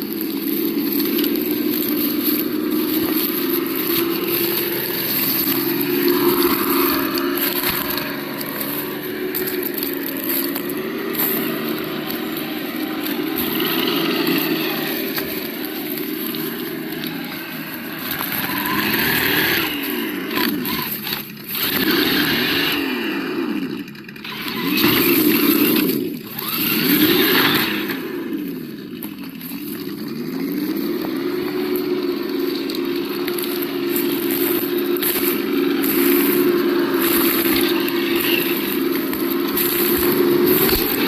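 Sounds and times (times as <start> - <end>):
scraping and crackling: 0.0 - 41.0
simulated engine revving: 0.0 - 41.0.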